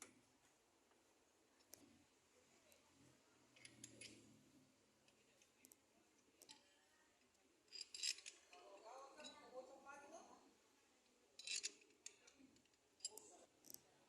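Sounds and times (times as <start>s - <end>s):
hand tools clinking: 7.7s - 8.6s, 11.4s - 12.2s.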